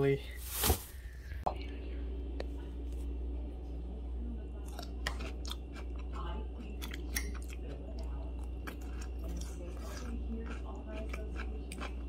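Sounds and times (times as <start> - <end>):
steady low hum: 0.0 - 12.0
person chewing crunchy food: 4.7 - 12.0.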